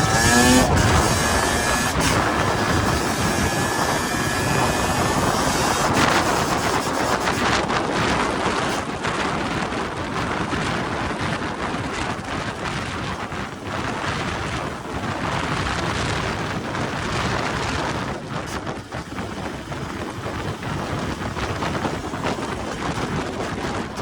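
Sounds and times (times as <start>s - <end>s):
dirt bike engine revving: 0.0s - 8.8s
wind noise on microphone: 0.0s - 24.0s.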